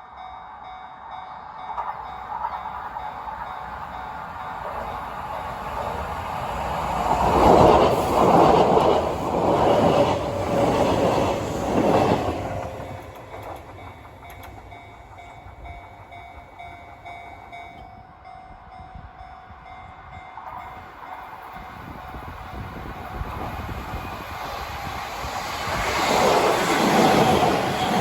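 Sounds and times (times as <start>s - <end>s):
crossing warning bell ringing: 0.0s - 7.8s, 12.4s - 23.0s
train wheels clattering: 1.8s - 18.0s.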